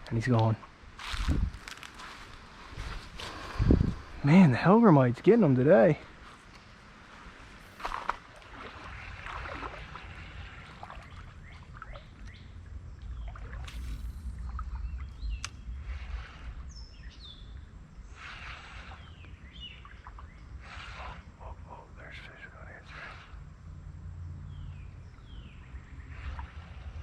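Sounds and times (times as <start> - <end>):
birds chirping: 0.1 - 26.8
low microphone rumble: 0.9 - 6.2, 7.6 - 20.5
water sloshing and splashing: 7.1 - 21.1.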